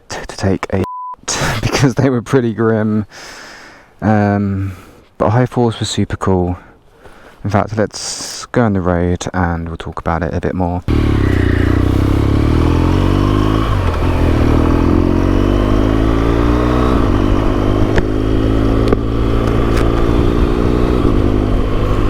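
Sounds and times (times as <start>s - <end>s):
motorcycle engine accelerating: 10.9s - 22.0s.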